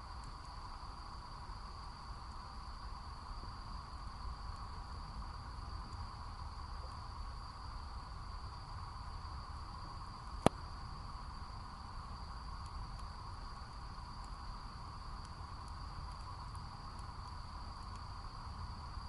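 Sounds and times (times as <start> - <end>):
insects chirring: 0.0 - 19.0
campfire crackling and popping: 9.6 - 19.0.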